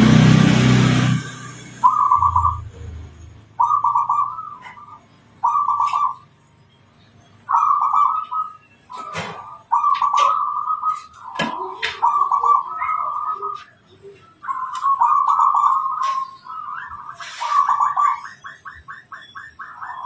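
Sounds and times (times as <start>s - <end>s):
dove cooing: 3.6s - 6.2s, 7.5s - 20.0s.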